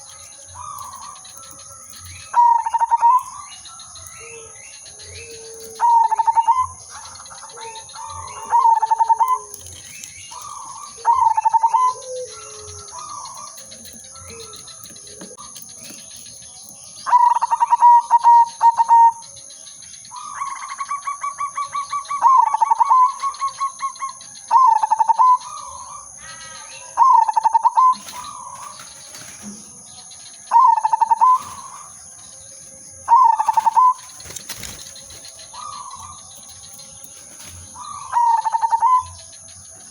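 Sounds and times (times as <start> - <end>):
lower-pitched bird calling: 0.0 - 16.2, 33.0 - 39.9
dove cooing: 0.0 - 16.4, 17.0 - 19.3, 20.2 - 26.1, 30.5 - 32.0, 33.0 - 39.9.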